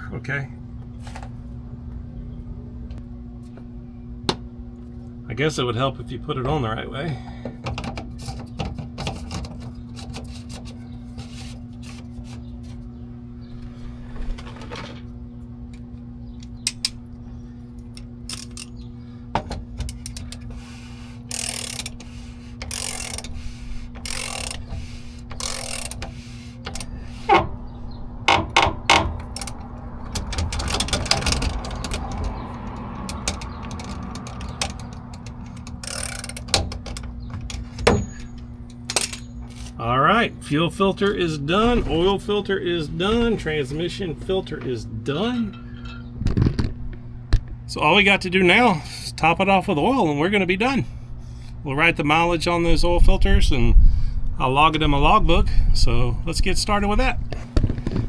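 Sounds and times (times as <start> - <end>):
steady low hum: 0.0 - 58.0
ratchet wrench clicking: 16.7 - 17.0, 18.0 - 18.8, 19.8 - 27.4, 28.3 - 39.7
tool clinks and knocks: 18.3 - 18.8, 21.3 - 22.0, 24.0 - 27.4, 28.3 - 39.8.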